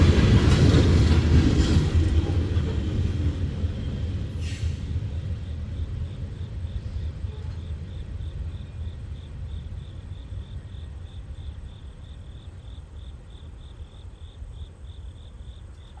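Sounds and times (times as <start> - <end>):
coal train rumbling by: 0.0 - 16.0
insect chirping: 4.4 - 16.0.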